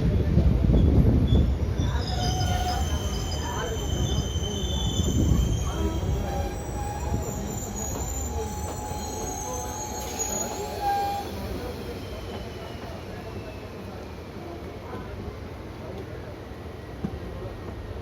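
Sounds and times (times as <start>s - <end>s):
train coaches rumbling on track: 0.0s - 18.0s
high-pitched wheel squeal: 1.3s - 13.8s.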